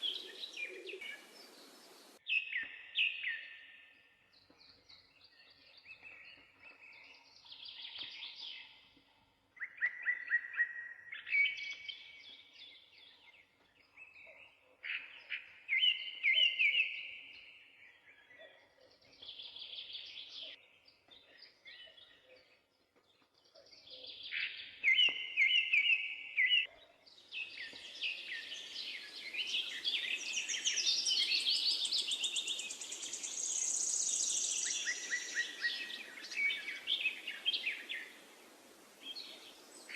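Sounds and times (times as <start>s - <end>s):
songbirds singing: 0.0s - 39.9s
steady hiss: 1.0s - 2.2s.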